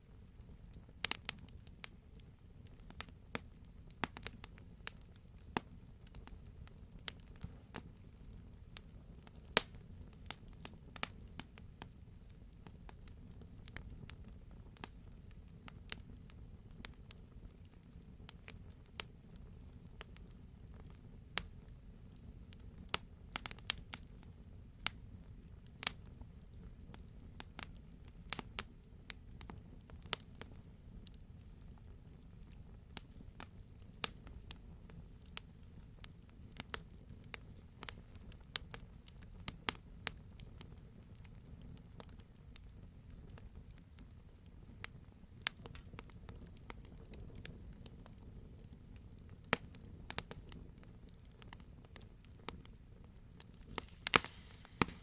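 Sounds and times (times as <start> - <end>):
campfire crackling: 0.1 - 55.0
logs popping and snapping: 53.6 - 55.0.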